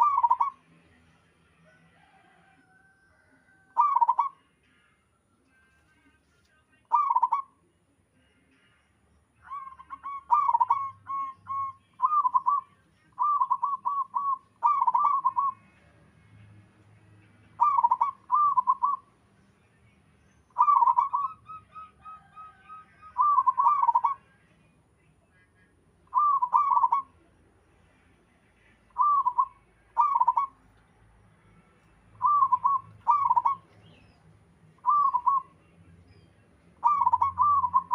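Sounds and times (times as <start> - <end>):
doves cooing: 0.0 - 0.6, 3.7 - 4.4, 6.9 - 7.5, 9.5 - 12.6, 13.2 - 15.6, 17.6 - 19.0, 20.6 - 24.2, 26.1 - 27.1, 29.0 - 30.6, 32.2 - 34.1, 34.8 - 35.5, 36.8 - 37.9
fainter bird answering: 20.6 - 24.2.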